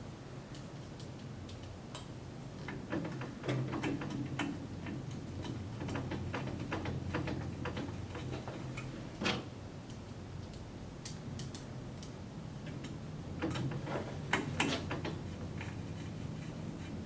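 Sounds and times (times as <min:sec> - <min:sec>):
small clicks and ticks: 0:09.9 - 0:13.7.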